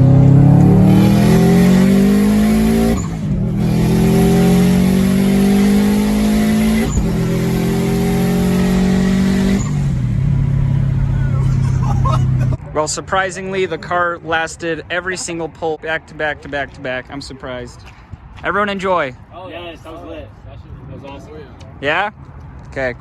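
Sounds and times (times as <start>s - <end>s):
car engine accelerating hard: 0.0s - 12.6s.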